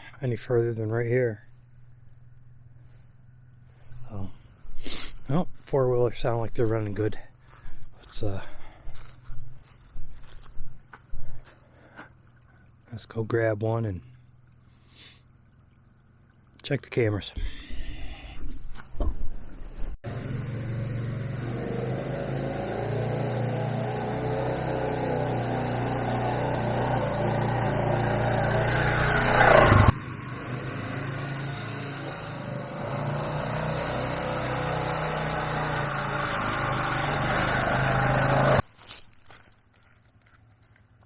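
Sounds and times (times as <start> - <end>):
atv engine running: 1.4 - 4.8, 20.0 - 38.6.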